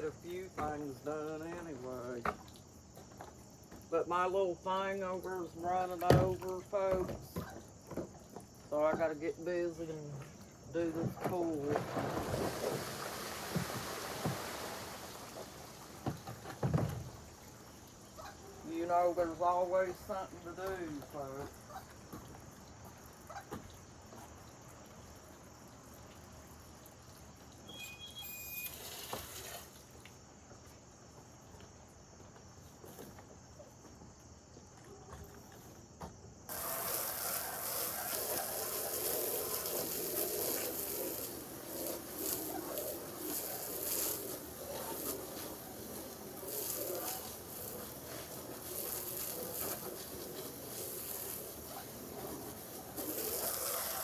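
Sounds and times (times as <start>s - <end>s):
insects chirring: 0.0s - 54.0s
water gushing into a pool: 11.6s - 18.0s, 28.6s - 30.0s, 36.5s - 54.0s.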